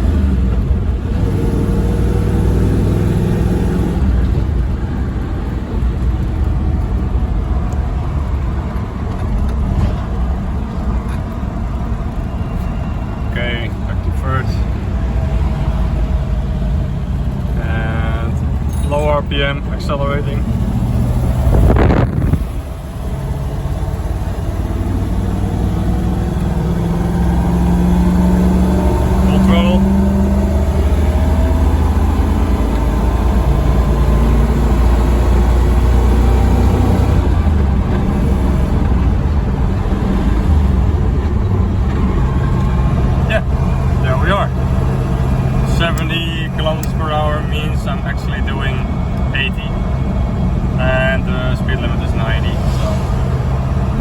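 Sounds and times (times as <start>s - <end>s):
engine drone: 0.0s - 54.0s
road and tyre noise: 0.0s - 54.0s
loud rushing noise: 48.6s - 54.0s.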